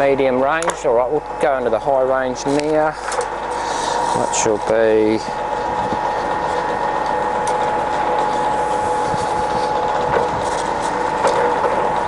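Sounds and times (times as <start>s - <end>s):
lathe gearing whine: 0.0s - 12.0s.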